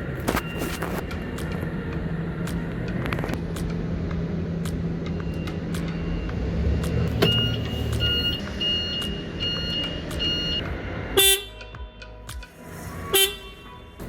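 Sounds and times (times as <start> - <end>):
forklift engine humming: 0.0 - 14.0
high warning beeps: 5.0 - 10.6
short horn toot: 13.1 - 13.8.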